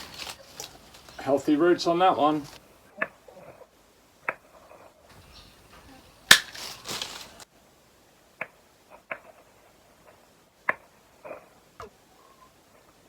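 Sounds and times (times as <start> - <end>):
stems crunching: 0.0 - 2.6, 5.1 - 7.5
leaf rustle: 0.0 - 13.0
secateurs snipping stems: 6.3 - 7.4.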